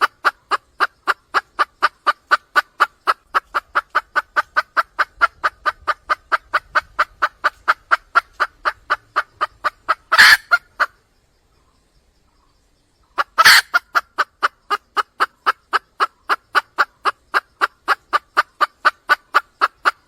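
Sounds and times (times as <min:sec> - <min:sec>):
hen clucking: 0:00.0 - 0:11.0, 0:13.1 - 0:20.0
hen squawking: 0:10.0 - 0:10.8.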